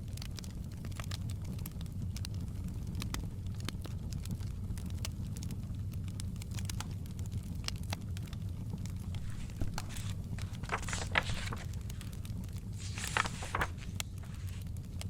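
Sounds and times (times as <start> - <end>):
wood fire crackling and popping: 0.0 - 15.0
book pages turning: 9.0 - 14.7.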